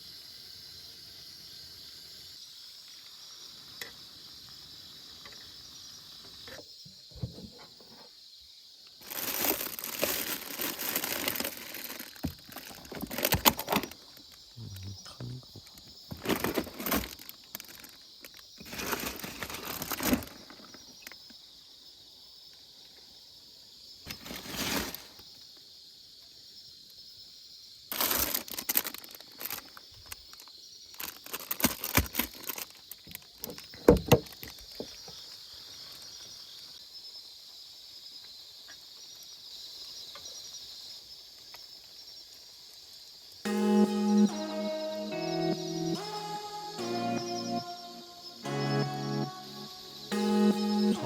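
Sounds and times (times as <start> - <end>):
steady high-pitched hiss: 0.0 - 51.0
rustling and crinkling: 9.0 - 14.5, 15.5 - 21.3, 24.1 - 25.4, 27.9 - 36.8.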